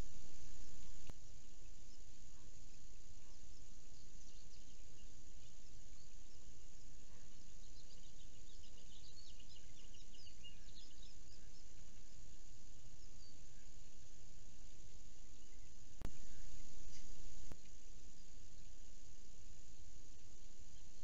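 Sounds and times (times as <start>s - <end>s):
outdoor hiss: 0.0s - 4.2s.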